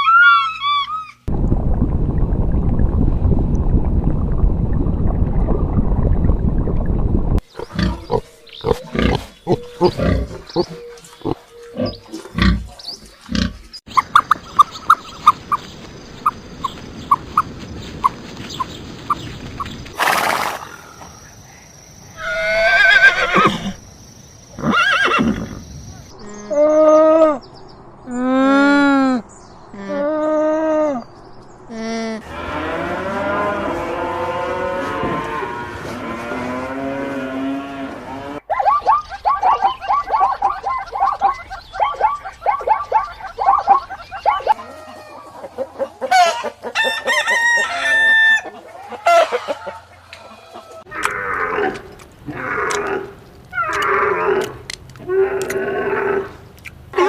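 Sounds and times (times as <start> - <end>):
cattle mooing: 32.2 - 38.4.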